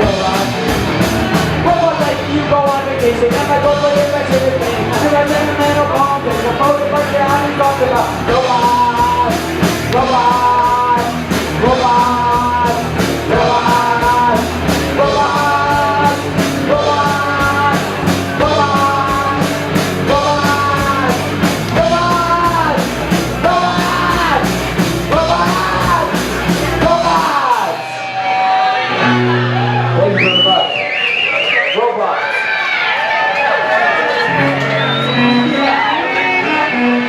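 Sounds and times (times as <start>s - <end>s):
person singing: 0.0s - 29.8s, 34.2s - 37.0s
bass guitar: 0.0s - 30.6s, 32.8s - 37.0s
drums: 0.0s - 37.0s.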